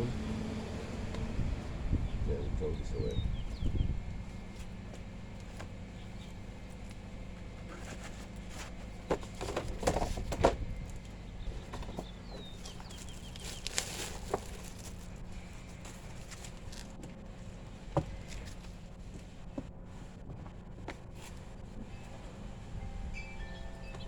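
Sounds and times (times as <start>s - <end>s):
steady low hum: 0.0s - 24.0s
bird chirps: 2.0s - 4.0s
knocks and rustles: 4.5s - 17.2s.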